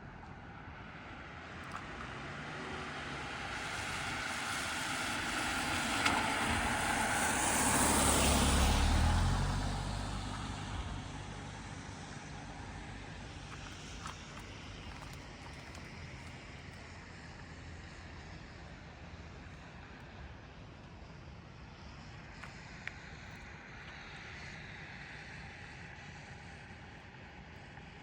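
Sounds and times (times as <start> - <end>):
vehicle passing on wet road: 0.6 - 18.6.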